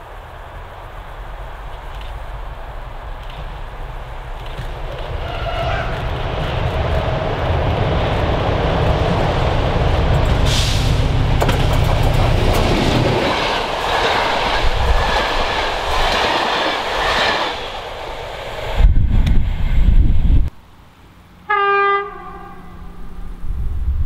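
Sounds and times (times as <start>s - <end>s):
diesel locomotive engine drone: 0.0s - 24.0s
train wheels clattering: 3.1s - 18.6s.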